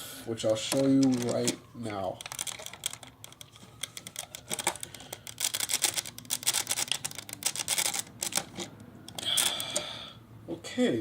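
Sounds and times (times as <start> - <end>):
plastic bricks clicking and clattering: 0.8 - 8.7.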